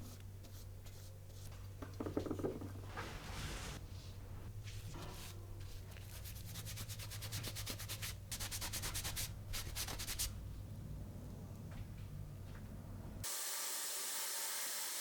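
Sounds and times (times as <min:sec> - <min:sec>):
abrasive rubbing by hand: 0:02.8 - 0:03.8.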